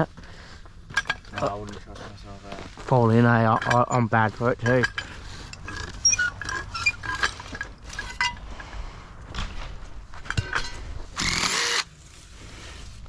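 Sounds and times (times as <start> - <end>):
cordless screw gun running: 11.2 - 11.9.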